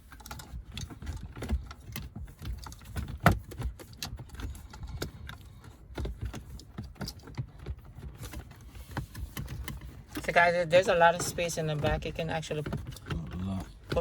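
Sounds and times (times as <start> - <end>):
plastic parts clicking and rattling: 0.0 - 10.4.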